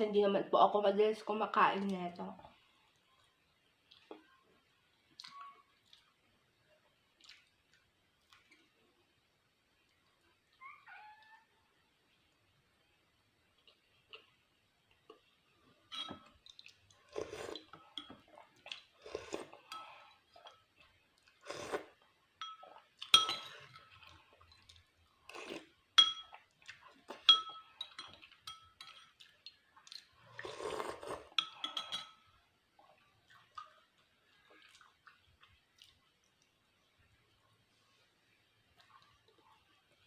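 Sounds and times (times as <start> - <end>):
eating sounds: 5.0 - 8.8, 28.1 - 31.7, 32.8 - 37.4
cutlery clinking on dishes: 15.9 - 16.4, 22.4 - 24.0, 26.0 - 26.4, 27.1 - 29.2, 31.3 - 32.3.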